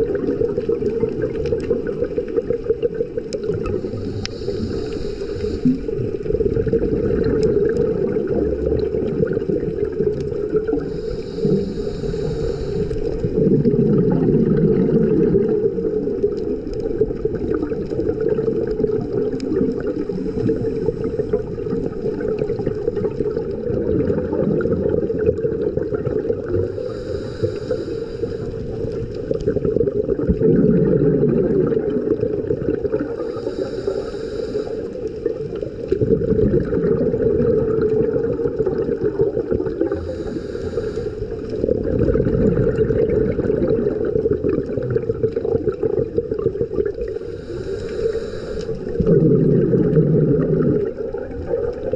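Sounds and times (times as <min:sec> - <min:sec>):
muffled underwater sound: 0:00.0 - 0:51.9
diver breathing through regulator: 0:03.5 - 0:06.2, 0:10.7 - 0:13.5, 0:26.4 - 0:29.4, 0:33.0 - 0:36.8, 0:39.7 - 0:41.7, 0:46.9 - 0:50.9.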